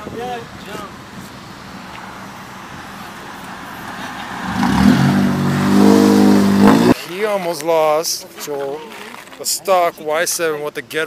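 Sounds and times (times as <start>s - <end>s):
car engine revving: 1.5s - 7.0s.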